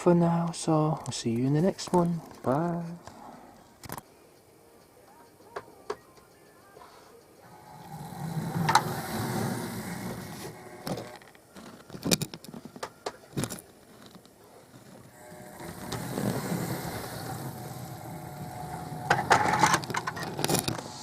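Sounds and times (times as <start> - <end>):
model train electric motor hum: 7.4 - 11.2, 15.0 - 21.0.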